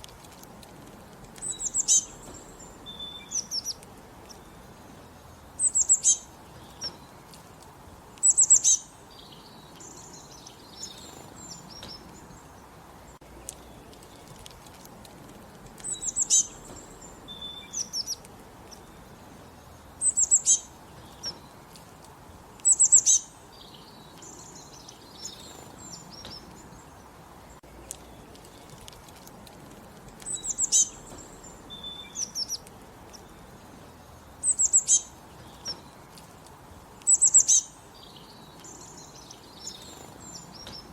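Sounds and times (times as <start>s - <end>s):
soft bird chirps: 0.0s - 40.9s
songbirds singing: 0.0s - 40.9s.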